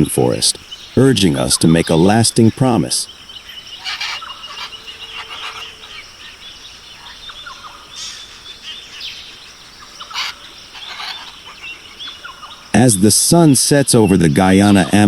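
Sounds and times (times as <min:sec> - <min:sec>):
bird chirps: 0:00.0 - 0:15.0
harsh bird squawks: 0:03.3 - 0:08.4, 0:09.8 - 0:12.6.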